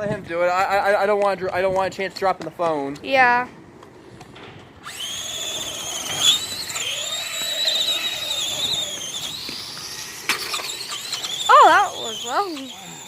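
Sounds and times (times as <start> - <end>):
electric motor whining: 4.8 - 13.0.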